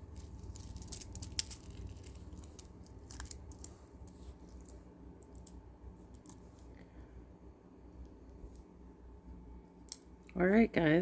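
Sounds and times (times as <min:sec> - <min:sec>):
steady low hum: 0:00.0 - 0:11.0
plastic beads clicking: 0:00.1 - 0:06.4.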